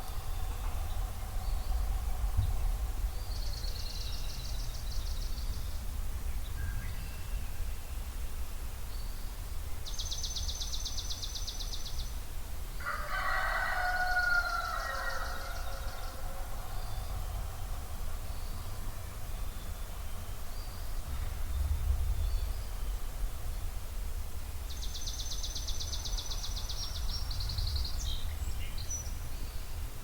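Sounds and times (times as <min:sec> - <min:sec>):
steady low rumble: 0:00.0 - 0:09.8, 0:15.8 - 0:30.0
rooster crowing: 0:12.8 - 0:17.9.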